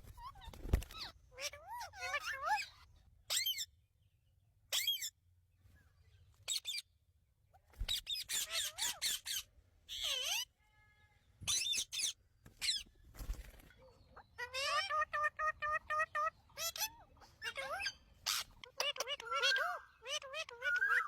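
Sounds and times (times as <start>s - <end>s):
parrot squawking and chattering: 0.2s - 3.7s, 4.7s - 5.2s, 6.5s - 6.9s, 7.6s - 10.5s, 11.5s - 12.8s, 14.2s - 21.0s.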